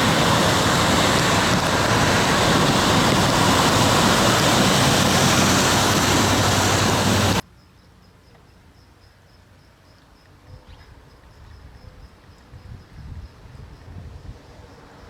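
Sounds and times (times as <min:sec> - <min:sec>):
low rumble: 0:00.0 - 0:07.4
rush of heavy water: 0:00.0 - 0:07.4.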